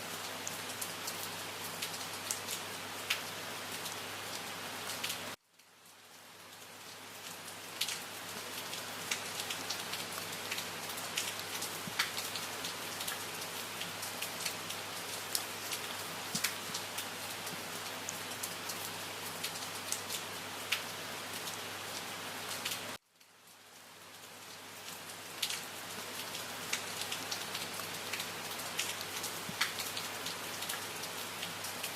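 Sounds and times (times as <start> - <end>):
rain hiss: 0.0 - 31.9
raindrops ticking: 8.6 - 18.2, 26.2 - 30.8.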